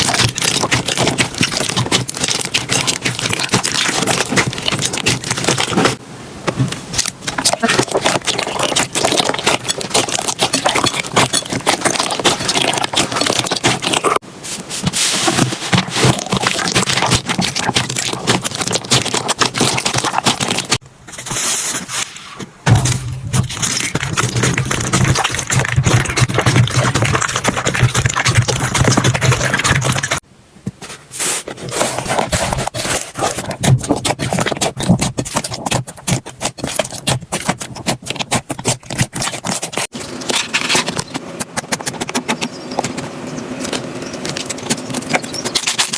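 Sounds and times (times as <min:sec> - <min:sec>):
slime crackling and popping: 0:00.0 - 0:06.0, 0:06.9 - 0:14.2, 0:15.9 - 0:20.8, 0:33.2 - 0:39.9.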